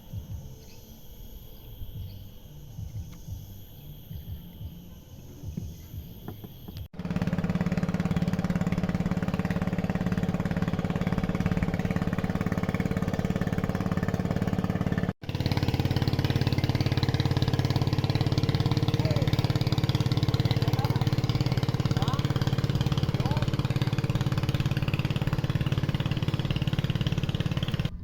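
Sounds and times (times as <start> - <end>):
faint outdoor ambience: 0.0 - 15.2
small engine running: 0.0 - 28.0.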